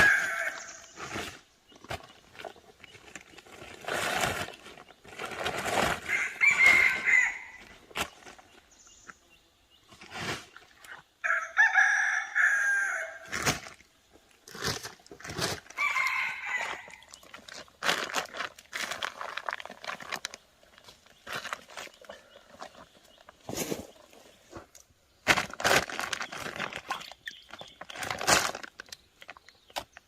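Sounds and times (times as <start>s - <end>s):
rooster crowing: 6.1s - 7.6s, 11.2s - 13.3s, 15.8s - 17.0s.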